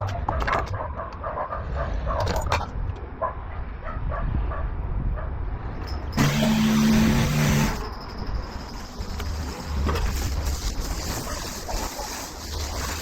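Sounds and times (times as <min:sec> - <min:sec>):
machine hum: 0:06.2 - 0:07.8
spraying water hiss: 0:09.0 - 0:13.0.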